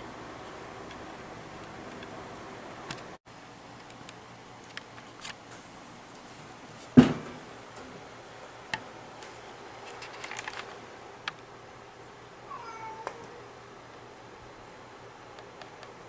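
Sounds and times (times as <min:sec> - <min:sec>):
loud knock: 0:07.0 - 0:07.5.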